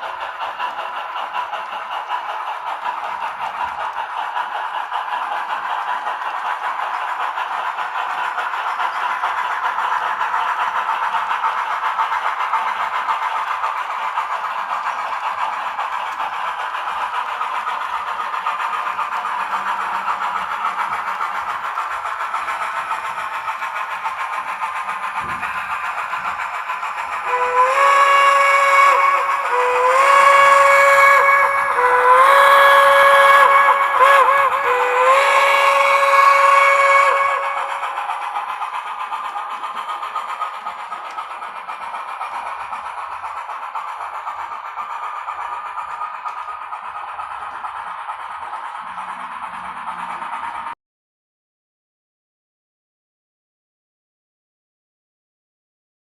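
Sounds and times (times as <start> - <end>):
model train steam hiss: 0.0 - 50.8
steam whistle blasts: 27.2 - 38.0.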